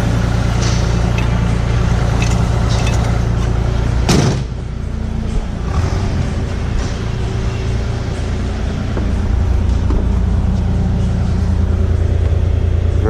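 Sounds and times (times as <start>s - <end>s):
diesel engine idling: 0.0s - 13.0s
sharp metallic clunk: 4.0s - 4.6s.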